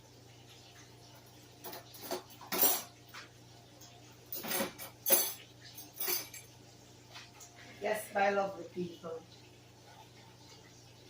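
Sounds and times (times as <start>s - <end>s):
cutlery clinking on a plate: 1.6s - 3.3s, 4.4s - 6.5s.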